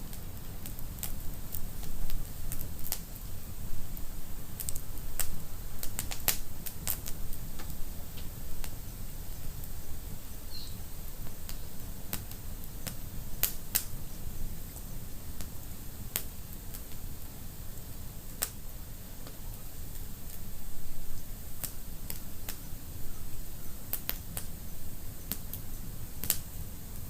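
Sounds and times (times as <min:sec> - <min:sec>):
low rumble of burning fire: 0:00.0 - 0:27.0
wood fire crackling: 0:00.0 - 0:27.0.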